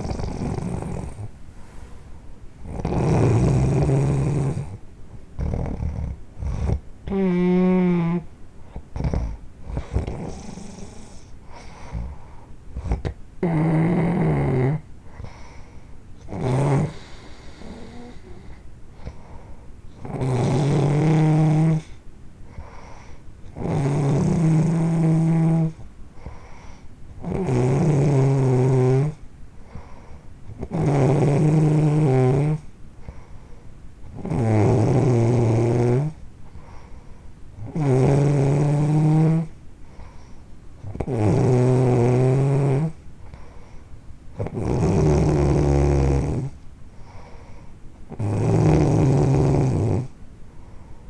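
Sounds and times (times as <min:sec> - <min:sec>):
loud snoring: 0:00.0 - 0:01.3, 0:02.6 - 0:04.8, 0:05.4 - 0:08.2, 0:09.0 - 0:12.2, 0:12.8 - 0:14.9, 0:16.3 - 0:18.5, 0:20.0 - 0:22.0, 0:23.5 - 0:25.8, 0:27.2 - 0:29.2, 0:30.5 - 0:32.7, 0:34.1 - 0:36.2, 0:37.6 - 0:39.6, 0:40.8 - 0:43.0, 0:44.4 - 0:46.6, 0:48.1 - 0:50.1
quiet breaths: 0:00.0 - 0:51.0.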